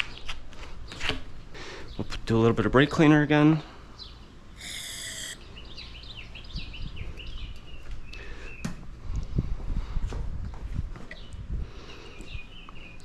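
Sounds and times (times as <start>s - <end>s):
birds chirping: 3.9s - 8.8s
aerosol spray hissing: 4.6s - 5.4s.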